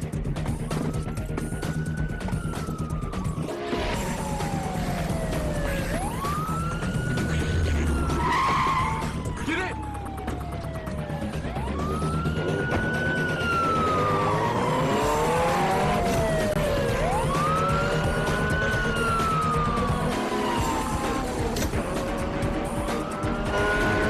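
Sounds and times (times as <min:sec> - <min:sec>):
police siren wailing: 0:00.0 - 0:24.0
car engine running: 0:08.8 - 0:24.0.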